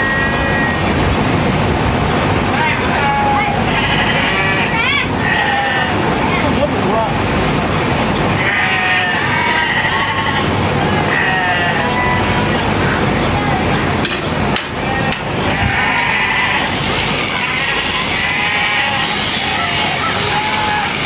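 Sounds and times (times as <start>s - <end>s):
sheep bleating: 3.0s - 6.0s, 8.4s - 12.4s, 15.5s - 16.7s, 17.4s - 21.0s
steady background din: 12.4s - 21.0s.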